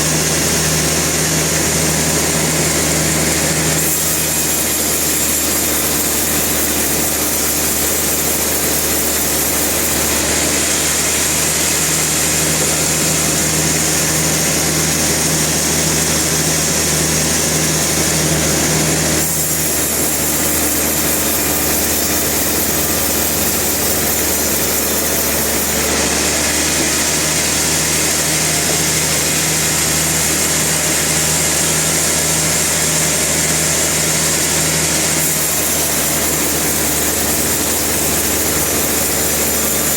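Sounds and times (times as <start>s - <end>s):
engine drone: 0.0s - 39.9s
saw cutting: 0.0s - 39.9s.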